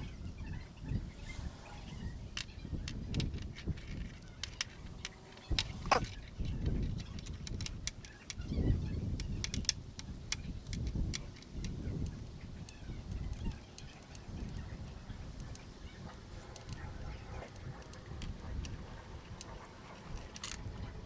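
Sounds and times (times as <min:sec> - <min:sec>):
clinks of tools and metal parts: 0:05.4 - 0:06.2.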